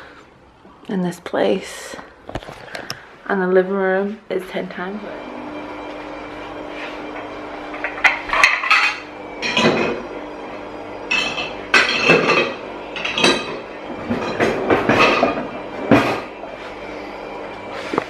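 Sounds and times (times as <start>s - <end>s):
dishes and cutlery clattering: 7.8s - 10.0s, 11.1s - 16.3s.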